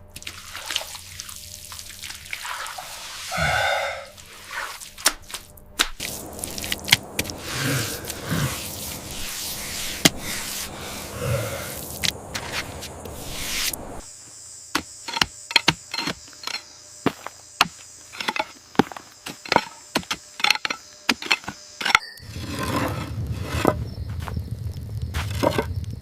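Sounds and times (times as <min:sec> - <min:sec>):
steady high hiss: 0:00.9 - 0:21.8
rustling rushing noise: 0:06.0 - 0:14.1.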